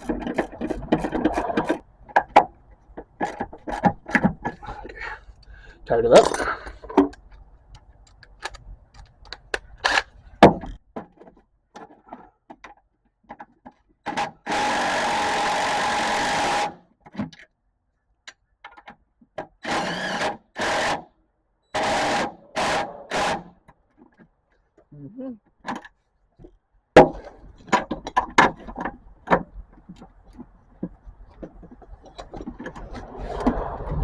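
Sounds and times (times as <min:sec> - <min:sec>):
small power tool whining: 0:14.3 - 0:16.8, 0:21.8 - 0:23.6.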